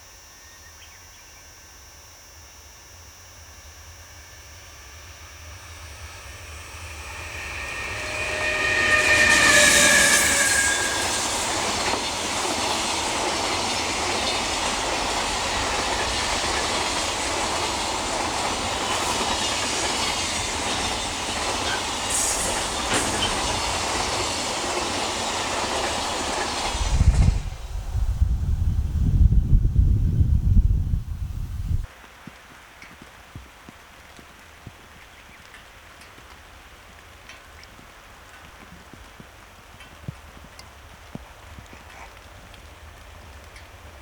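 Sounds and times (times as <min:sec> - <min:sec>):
train wheels rolling on rails: 0:04.0 - 0:29.4, 0:35.4 - 0:44.0
locomotive horn: 0:04.2 - 0:14.0
wind buffeting the microphone: 0:06.0 - 0:31.9.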